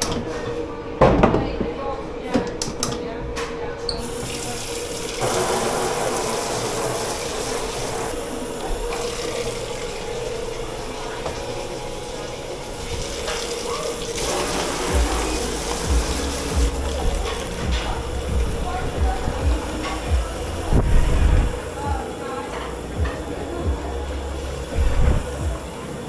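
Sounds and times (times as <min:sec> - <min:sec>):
tap water running into sink: 0:04.0 - 0:23.6
steady hum: 0:05.2 - 0:26.0.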